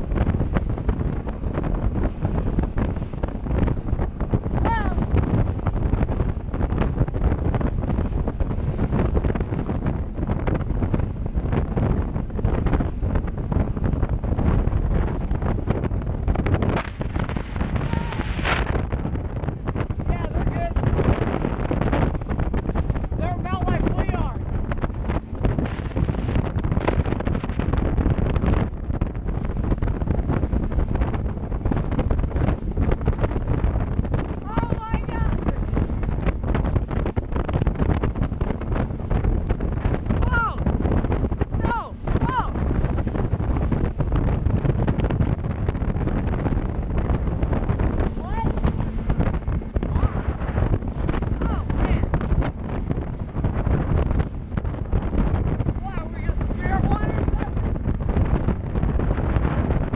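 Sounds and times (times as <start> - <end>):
boat hull slapping waves: 0.0 - 59.9
wind buffeting microphone: 0.0 - 59.9.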